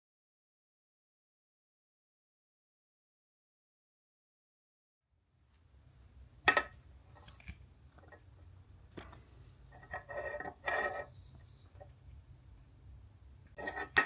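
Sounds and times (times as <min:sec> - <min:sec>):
scraping and rubbing: 0:08.9 - 0:12.0, 0:13.5 - 0:14.0.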